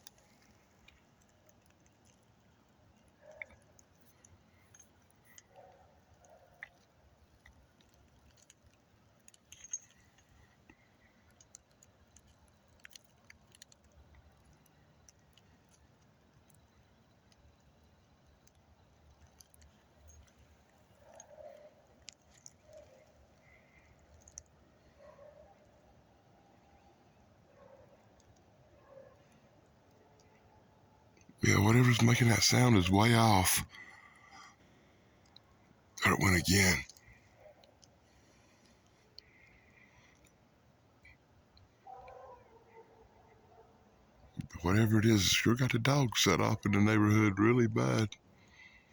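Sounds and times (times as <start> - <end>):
faint distant dog barks: 3.1 - 3.8, 5.3 - 6.9, 20.9 - 22.0, 24.8 - 32.6, 41.7 - 44.6.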